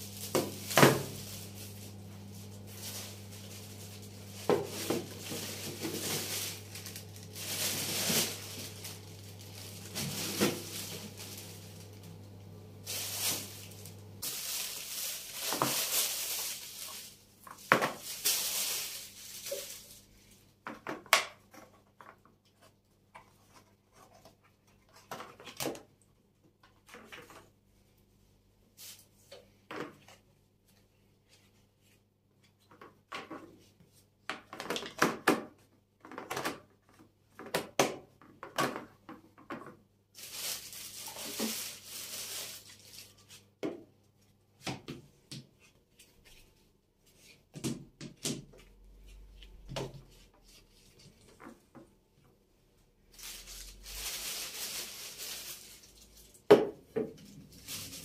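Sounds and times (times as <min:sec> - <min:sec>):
rustling: 0:00.0 - 0:12.2, 0:12.8 - 0:20.4, 0:40.2 - 0:43.4, 0:53.0 - 0:56.5, 0:57.1 - 0:58.0.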